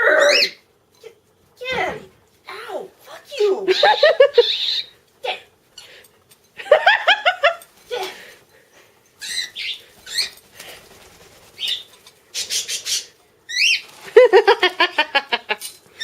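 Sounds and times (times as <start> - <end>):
cockatiel whiny calls: 0.0 - 0.6, 3.7 - 5.0
person laughing: 3.7 - 4.6, 14.1 - 15.6.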